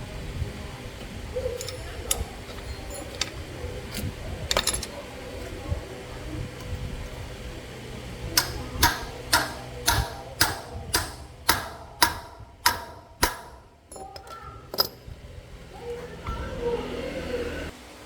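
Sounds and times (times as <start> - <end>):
sharp metallic knocks: 8.4 - 15.0.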